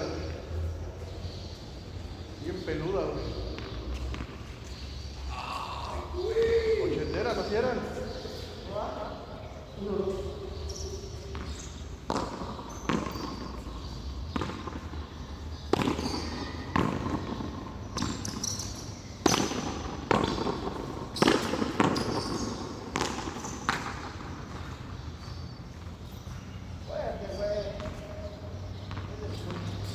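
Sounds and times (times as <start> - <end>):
handball hitting wall and court: 11.3 - 24.8.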